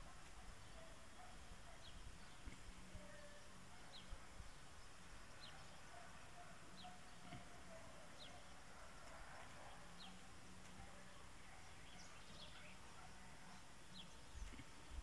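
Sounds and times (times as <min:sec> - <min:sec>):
faint high bird chirp: 0:05.3 - 0:14.7.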